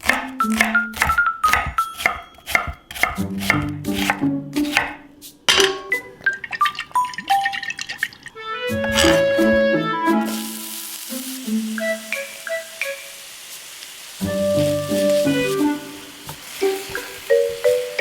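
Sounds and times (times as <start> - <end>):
knife chopping on cutting board: 0.0 - 5.0, 8.8 - 9.6
light background music: 0.0 - 7.7, 8.4 - 13.3, 14.2 - 18.0.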